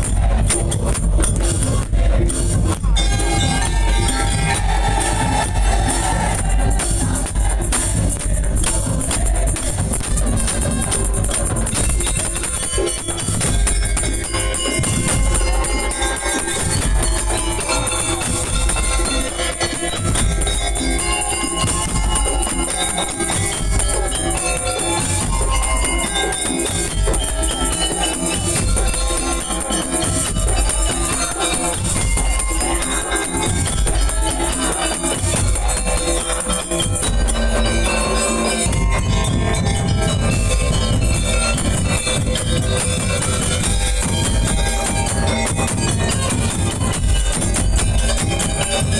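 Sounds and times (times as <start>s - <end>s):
heavy drum beats: 0.0s - 48.9s
tambourine jingles: 0.0s - 48.9s.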